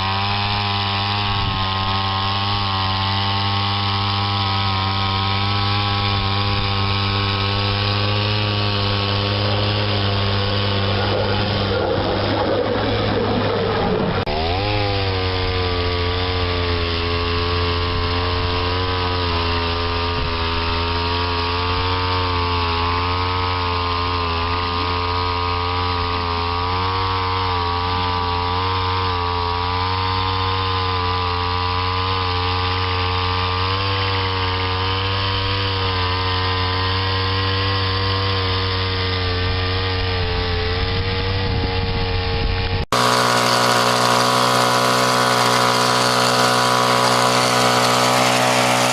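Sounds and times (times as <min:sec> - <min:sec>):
motor running: 0:00.0 - 0:48.9
machine sound: 0:06.8 - 0:16.4.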